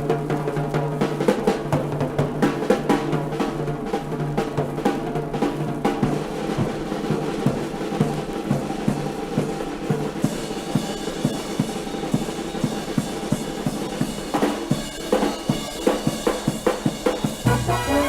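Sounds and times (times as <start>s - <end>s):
drum kit solo: 10.4s - 18.0s
held low note: 17.5s - 18.0s.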